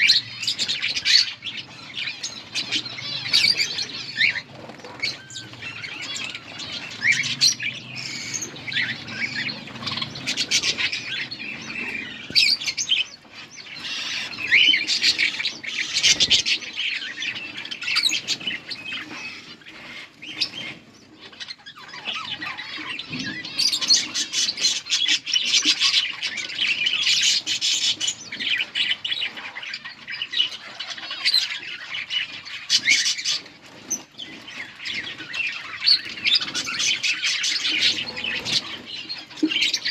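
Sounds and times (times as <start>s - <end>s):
wing flutters: 0.0s - 16.6s
budgerigars chattering and squawking: 0.0s - 39.9s.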